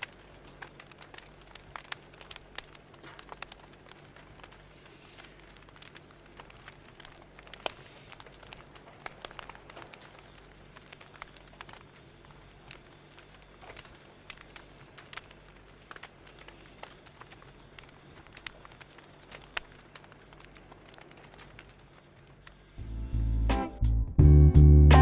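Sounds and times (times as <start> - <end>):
fire crackling: 0.0 - 25.0.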